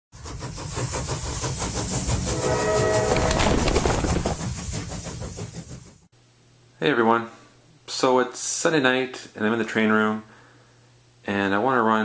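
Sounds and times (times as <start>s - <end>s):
train wheels clattering over rails: 0.2s - 6.1s
train horn: 2.2s - 4.0s.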